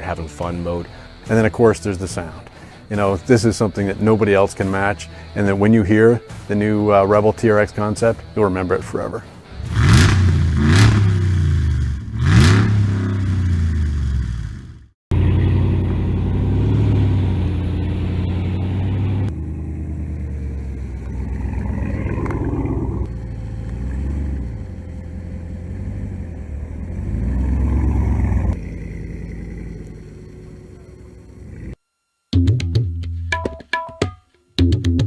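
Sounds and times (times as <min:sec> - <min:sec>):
drum music: 0:32.3 - 0:35.0.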